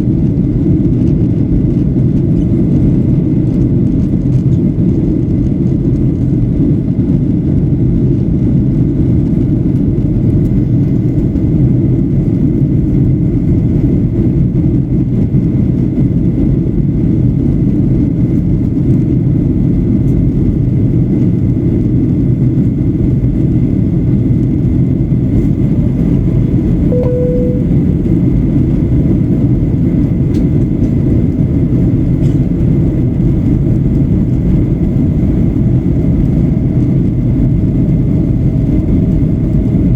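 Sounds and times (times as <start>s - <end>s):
airplane cabin roar: 0.0s - 39.9s
short single tone: 26.9s - 28.2s.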